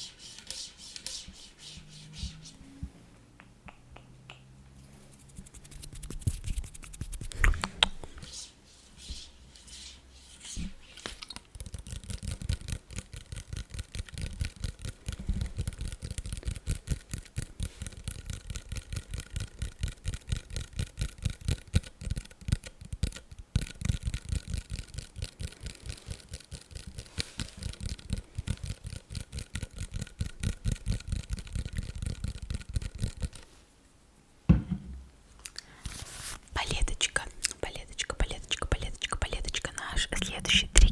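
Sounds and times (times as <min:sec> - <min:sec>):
tapping and scratching on bottle: 0:05.1 - 0:08.2, 0:10.5 - 0:33.4, 0:36.6 - 0:40.9.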